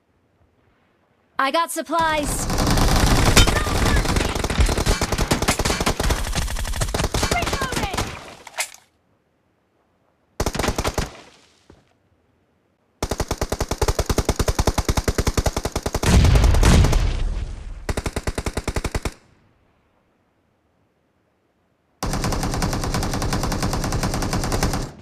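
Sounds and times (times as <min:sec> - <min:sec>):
video game automatic gunfire: 0:02.0 - 0:08.2, 0:22.0 - 0:25.0.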